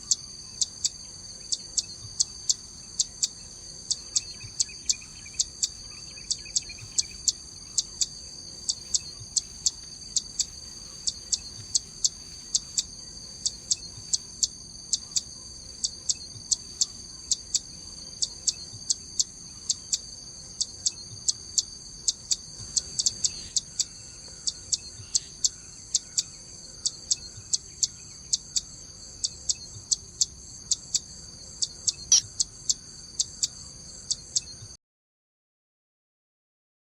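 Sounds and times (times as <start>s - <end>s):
high insect hum: 0.0s - 34.8s
bird giving sharp zit calls: 32.1s - 32.3s.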